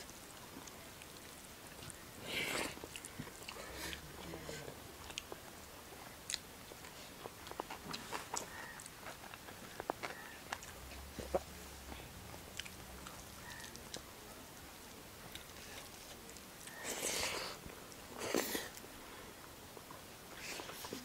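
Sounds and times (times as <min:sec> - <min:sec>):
chewing and mouth smacks: 0:05.0 - 0:14.1.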